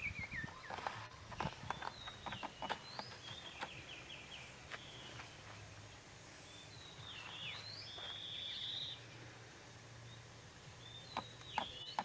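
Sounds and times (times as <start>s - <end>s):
birds singing: 0.0s - 12.0s.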